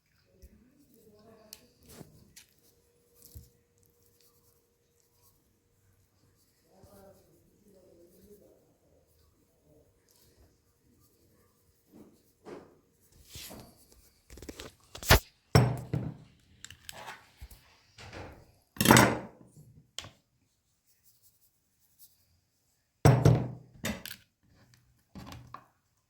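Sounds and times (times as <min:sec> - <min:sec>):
thuds and knocks: 0:23.1 - 0:23.6.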